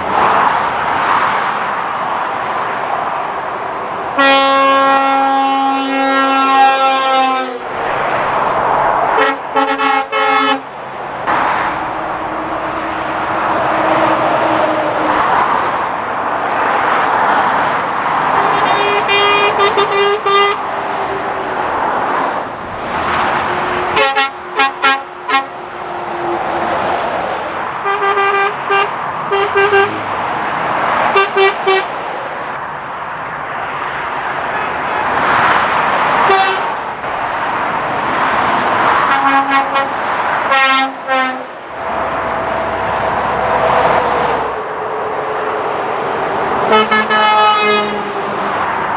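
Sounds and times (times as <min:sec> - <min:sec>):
traffic passing at speed: 0:00.0 - 0:48.9
vehicle horn tooting: 0:04.2 - 0:07.6, 0:09.2 - 0:10.6, 0:18.4 - 0:20.6, 0:23.9 - 0:25.5, 0:27.8 - 0:30.1, 0:31.1 - 0:31.9, 0:34.5 - 0:35.2, 0:36.2 - 0:36.7, 0:39.1 - 0:41.5, 0:46.7 - 0:48.2.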